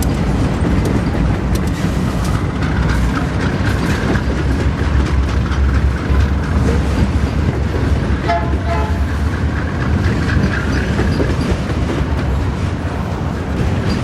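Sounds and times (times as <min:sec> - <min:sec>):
freight train rolling past: 0:00.0 - 0:14.0
train horn toot: 0:08.2 - 0:09.1.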